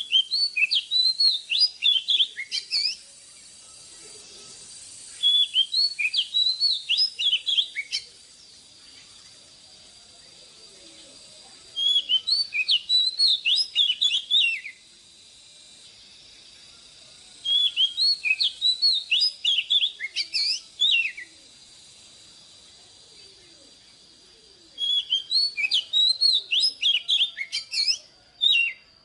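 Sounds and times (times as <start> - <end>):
bird singing whistled notes: 0.0 - 29.0.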